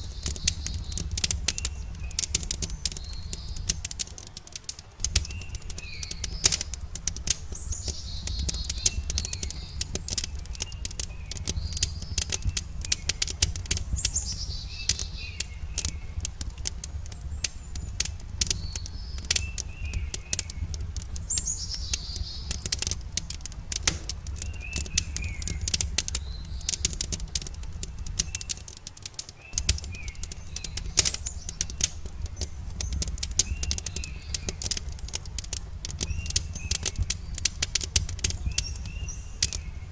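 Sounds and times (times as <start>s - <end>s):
campfire crackling and popping: 0.0s - 39.9s
songbirds calling: 0.0s - 39.9s.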